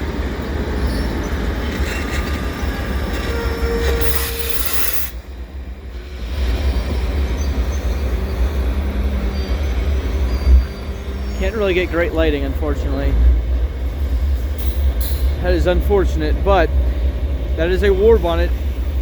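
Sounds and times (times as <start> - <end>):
diesel locomotive rumbling: 0.0 - 19.0
squealing tone: 3.1 - 5.2.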